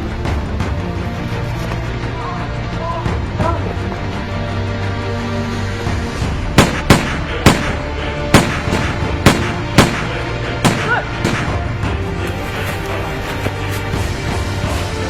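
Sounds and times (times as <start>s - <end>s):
soundtrack music: 0.0s - 15.0s
sharp gunshots: 6.6s - 11.8s.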